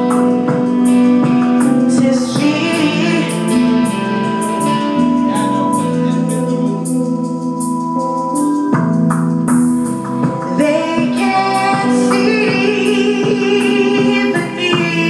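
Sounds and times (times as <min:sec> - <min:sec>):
woman singing: 0:00.0 - 0:07.3, 0:10.4 - 0:15.0
keyboard chords: 0:00.0 - 0:15.0
steady drum beat: 0:00.0 - 0:15.0.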